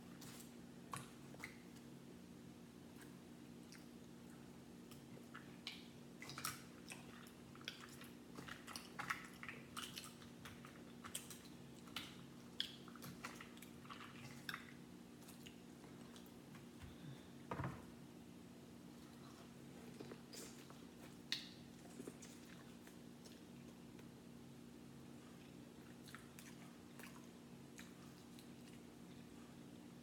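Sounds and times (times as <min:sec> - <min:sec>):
faint steady hum: 0:00.0 - 0:30.0
person chewing food: 0:02.9 - 0:17.2, 0:18.9 - 0:24.2, 0:25.1 - 0:30.0.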